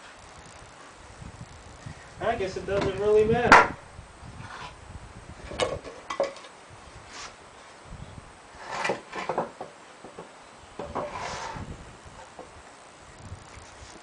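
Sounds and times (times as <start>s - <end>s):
wooden boards knocking and clattering: 5.5s - 6.5s, 8.7s - 11.2s.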